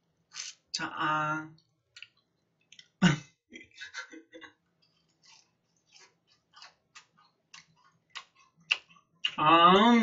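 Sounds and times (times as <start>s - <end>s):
wet chewing mouth smacks: 6.3s - 9.4s.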